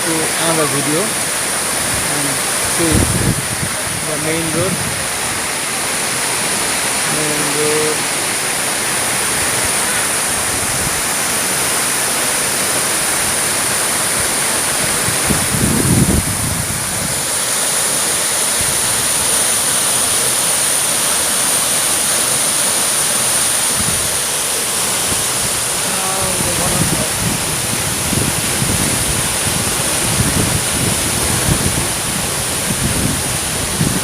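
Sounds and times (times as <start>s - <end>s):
person speaking: 0.0s - 1.4s, 2.0s - 4.8s, 7.0s - 8.2s, 25.8s - 27.4s
waterfall rushing: 0.0s - 34.0s.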